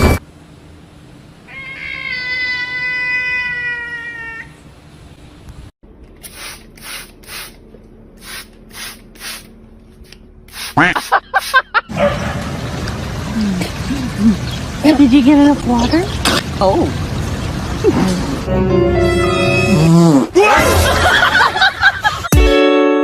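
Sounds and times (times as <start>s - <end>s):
cat meowing: 1.5s - 4.6s.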